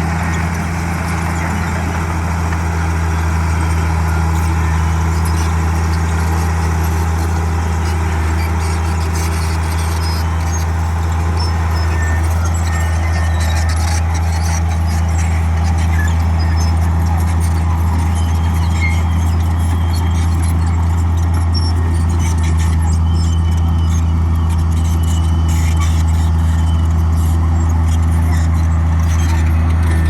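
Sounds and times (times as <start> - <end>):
bulldozer diesel engine droning: 0.0 - 30.0
steel tracks squeaking and clinking: 0.0 - 30.0.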